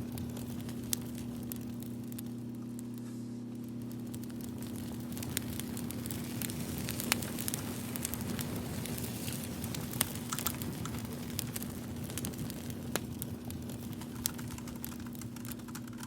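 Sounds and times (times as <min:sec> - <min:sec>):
low hum: 0:00.0 - 0:08.6
fire crackling and popping: 0:00.0 - 0:16.0.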